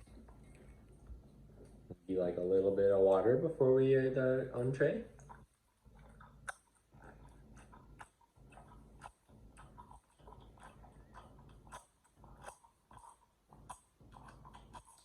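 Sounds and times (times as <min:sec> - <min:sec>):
sips and gulps of drinking water: 0:04.5 - 0:15.0.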